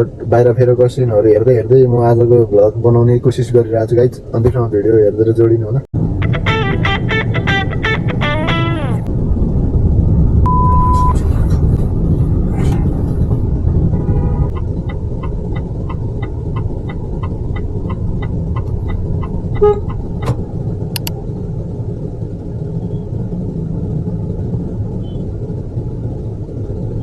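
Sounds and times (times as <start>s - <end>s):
car road rumble: 0.0s - 27.0s
car horn toot: 14.0s - 14.5s, 19.6s - 19.9s
sharp clicks: 21.0s - 21.2s.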